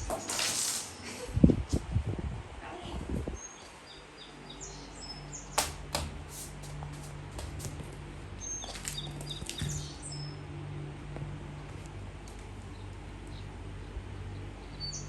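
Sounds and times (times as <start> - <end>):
steady low hum: 0.0 - 15.0
small birds chirping: 3.3 - 5.6, 8.4 - 10.4, 12.6 - 15.0.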